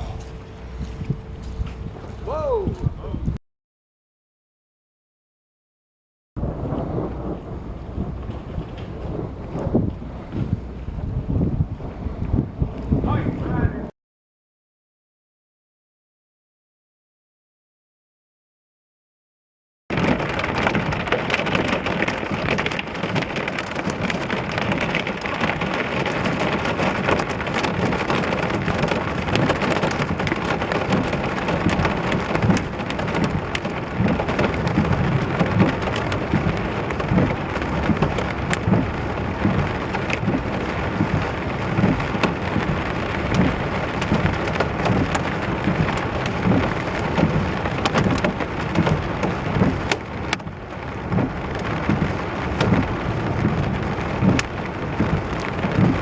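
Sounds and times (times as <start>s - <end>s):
heavy rain pouring: 6.4s - 13.9s, 19.9s - 56.0s
raindrops striking close by: 6.4s - 13.9s, 19.9s - 56.0s.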